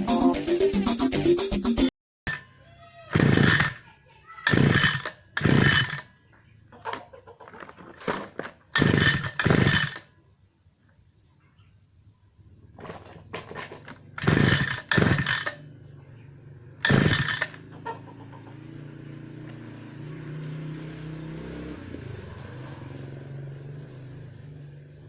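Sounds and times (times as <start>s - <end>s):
small engine humming: 2.4s - 6.7s, 8.7s - 10.1s, 12.6s - 25.0s
rasping recoil starter pulls: 3.1s - 3.8s, 4.4s - 6.1s, 8.0s - 10.1s, 12.8s - 15.8s, 16.8s - 17.7s.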